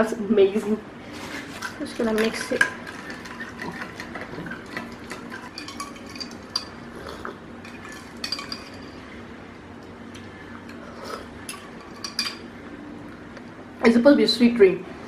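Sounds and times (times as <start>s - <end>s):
cutlery clinking against dishes: 1.5s - 9.0s, 11.4s - 12.5s.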